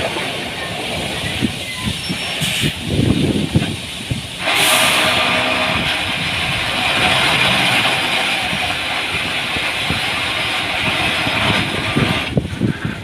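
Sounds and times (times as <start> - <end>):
diesel engine running: 0.0 - 13.0
strong even hiss: 0.0 - 13.0.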